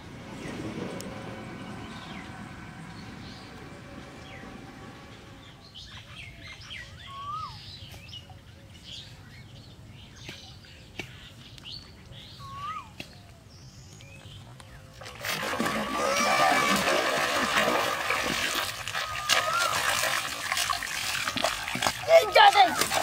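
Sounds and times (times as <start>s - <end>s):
multi-tone hum: 0.0s - 7.6s
birds chirping: 0.0s - 15.1s
whistled bird call: 5.7s - 8.0s, 12.2s - 13.2s.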